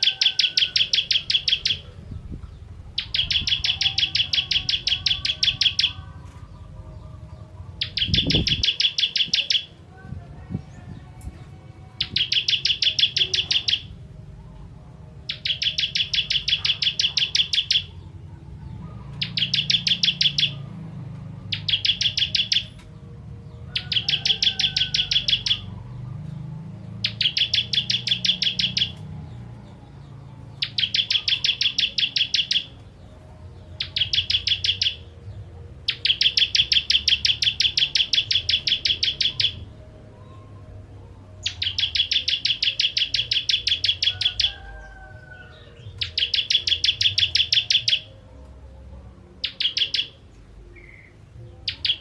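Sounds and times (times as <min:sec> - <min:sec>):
bird rapid chipping song: 0:00.0 - 0:14.0, 0:15.2 - 0:40.6, 0:41.4 - 0:48.6, 0:49.4 - 0:52.0.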